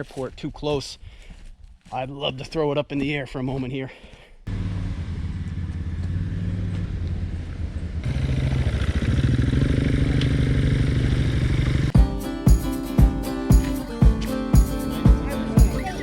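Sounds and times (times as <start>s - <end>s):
atv engine running: 4.5s - 12.0s
music with heavy beat: 12.0s - 16.0s.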